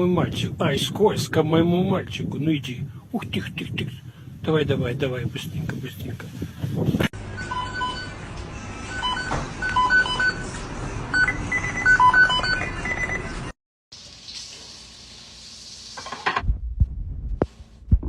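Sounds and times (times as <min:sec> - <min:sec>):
electronic beeps playing a tune: 0:11.1 - 0:13.5.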